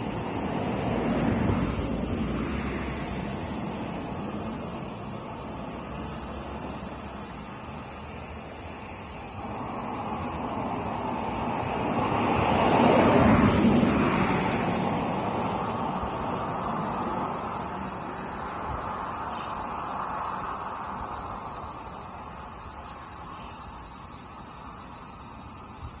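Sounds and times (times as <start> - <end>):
car passing: 0.0 - 8.1, 9.0 - 21.7
cicadas singing: 0.0 - 26.0.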